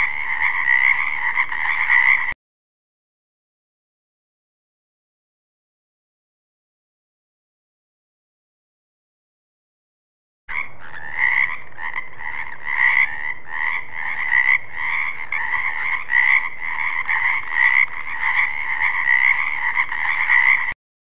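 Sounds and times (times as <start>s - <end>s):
frog croaking: 0.0s - 2.4s, 10.5s - 20.8s.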